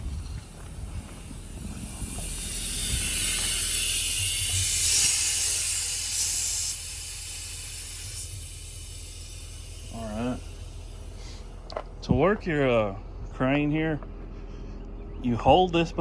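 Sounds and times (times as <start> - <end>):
compressed air hissing: 0.0 - 11.7
diesel engine idling: 0.0 - 16.0.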